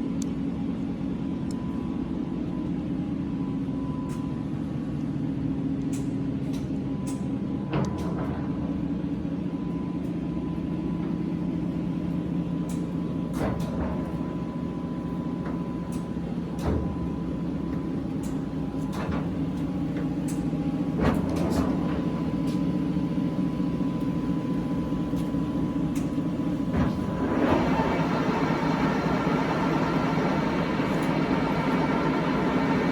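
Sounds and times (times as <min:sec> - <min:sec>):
lathe running drone: 0:26.9 - 0:32.9.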